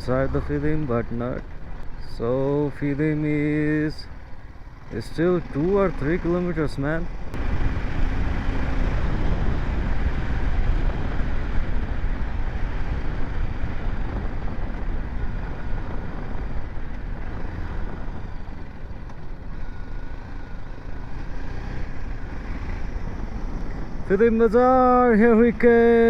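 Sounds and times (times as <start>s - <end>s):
motorcycle running: 0.0s - 26.0s
wind rushing on microphone: 7.3s - 19.6s, 20.6s - 26.0s.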